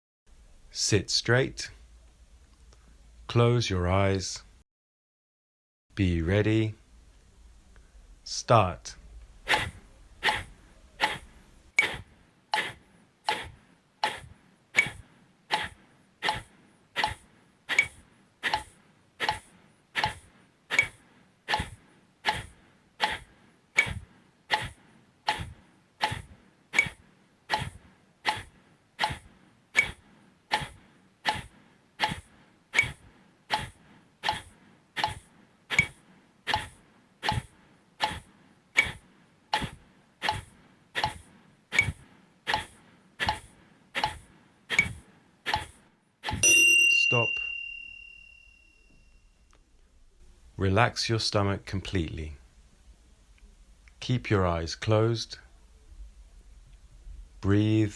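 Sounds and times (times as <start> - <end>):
forceful nasal exhalations: 9.4 - 46.4.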